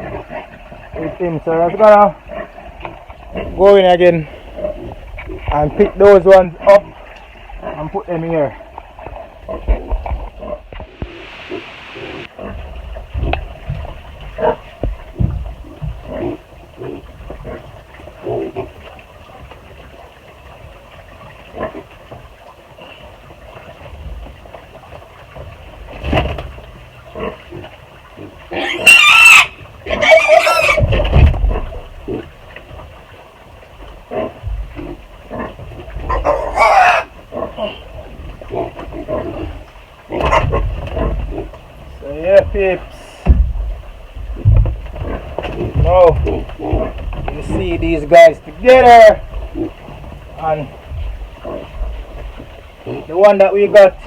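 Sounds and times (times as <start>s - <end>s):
piglets squealing: 28.5s - 30.9s, 36.1s - 37.1s
knocks and shuffling: 39.6s - 54.0s.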